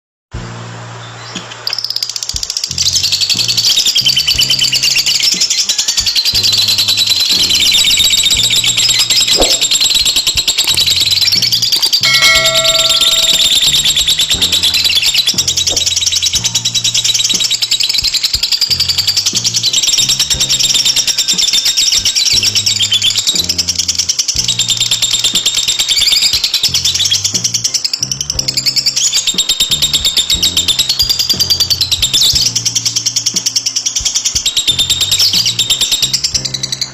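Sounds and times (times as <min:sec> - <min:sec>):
lovebird chattering trill: 0:01.3 - 0:36.9
backing track with bass line: 0:02.3 - 0:36.9.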